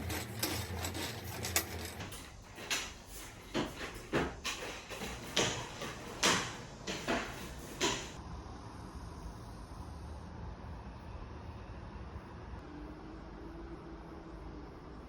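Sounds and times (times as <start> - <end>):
objects knocking and clacking: 0.0 - 8.2.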